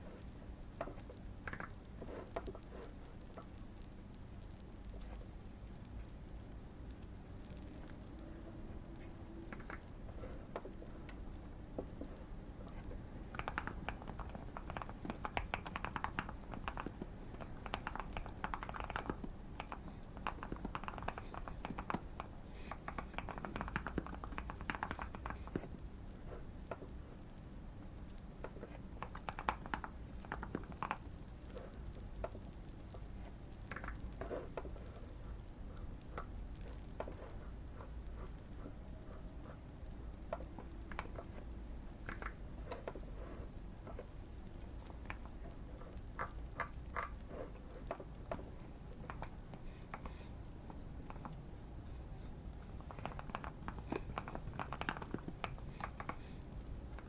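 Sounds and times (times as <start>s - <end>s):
fire crackling: 0.0s - 57.0s
mechanical keyboard typing: 12.7s - 25.8s, 29.0s - 32.5s, 52.8s - 56.1s.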